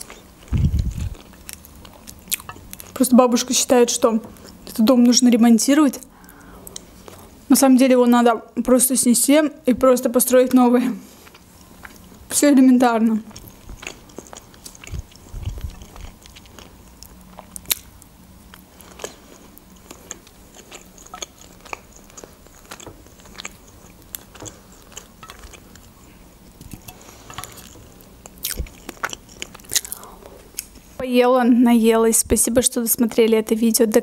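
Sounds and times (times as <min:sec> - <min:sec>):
chewing with wet mouth sounds: 0:00.0 - 0:03.0, 0:11.1 - 0:12.3, 0:13.2 - 0:30.8.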